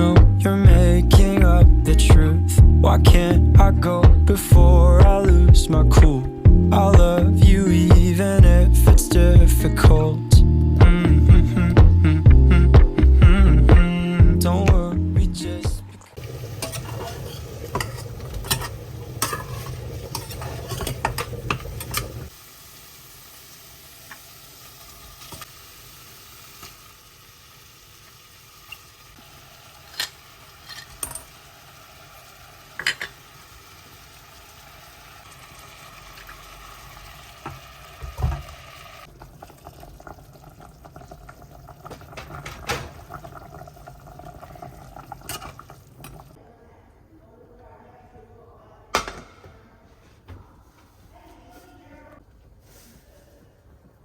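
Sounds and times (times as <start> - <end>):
steady sizzle: 16.1 - 46.4
utensils clinking and scraping: 16.6 - 22.3, 29.9 - 31.3.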